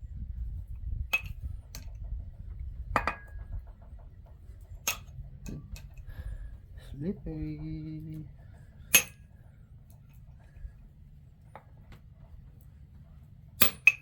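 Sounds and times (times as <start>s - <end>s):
steady low rumble: 0.0s - 14.0s
sharp metallic clinks: 8.9s - 9.2s, 13.6s - 14.0s.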